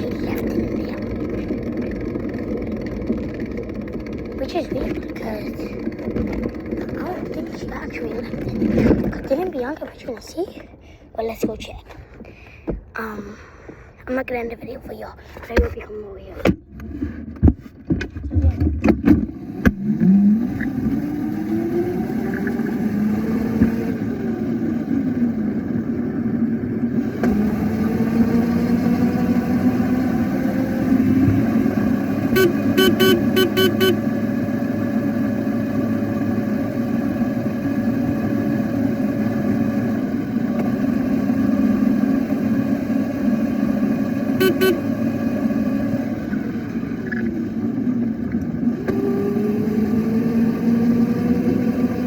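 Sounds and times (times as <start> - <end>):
small motorbike running: 0.0 - 11.0, 18.3 - 52.0
short horn beeps: 32.3 - 34.1, 44.4 - 44.9.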